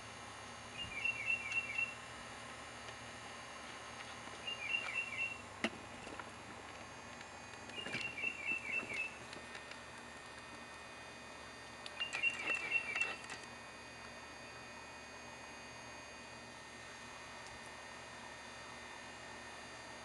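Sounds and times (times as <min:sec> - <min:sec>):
songbird singing: 0:00.7 - 0:02.0, 0:04.4 - 0:05.4, 0:07.7 - 0:09.2, 0:11.9 - 0:13.2.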